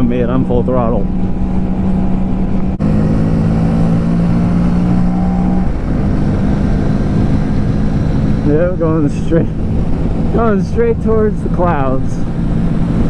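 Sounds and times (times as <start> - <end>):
wind rumble on microphone: 0.0 - 13.0
motorcycle engine buzzing: 0.9 - 13.0.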